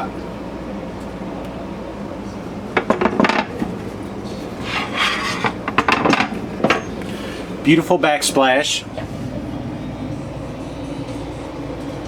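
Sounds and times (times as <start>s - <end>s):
steady low hum: 0.0s - 12.0s
rubbing or scraping: 4.6s - 5.6s.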